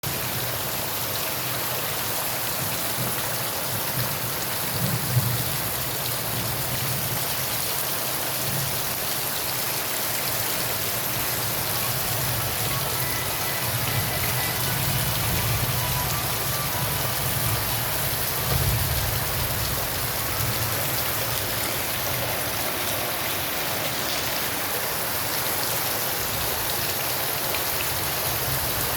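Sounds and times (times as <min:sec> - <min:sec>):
rain falling on surfaces: 0:00.0 - 0:28.9.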